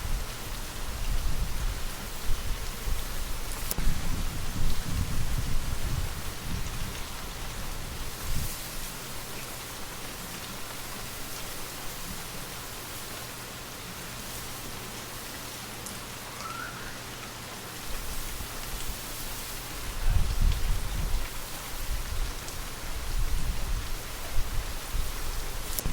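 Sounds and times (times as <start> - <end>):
low wind rumble: 0.0 - 8.5, 19.8 - 25.9
light rain pattering: 0.0 - 25.9.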